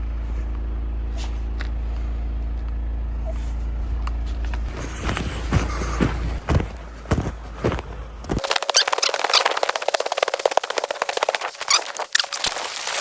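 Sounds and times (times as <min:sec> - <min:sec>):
generator engine humming: 0:03.1 - 0:08.8
irregular crunches and knocks: 0:04.4 - 0:13.0.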